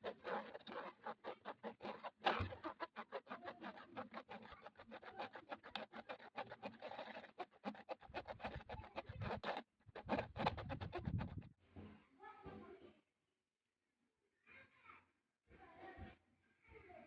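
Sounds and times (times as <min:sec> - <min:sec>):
rapid scratching strokes: 0:00.0 - 0:11.5.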